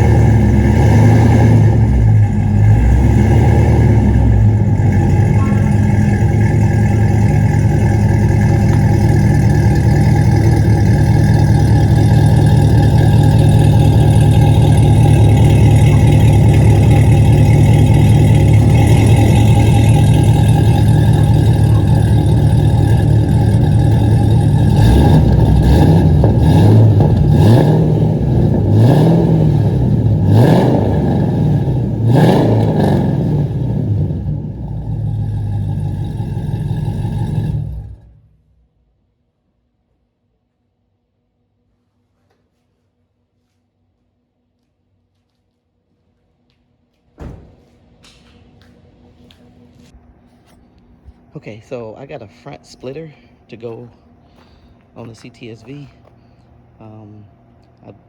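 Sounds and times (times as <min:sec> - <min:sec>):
car engine revving: 0:00.0 - 0:38.6
car engine idling: 0:00.0 - 0:38.9, 0:47.2 - 0:58.0.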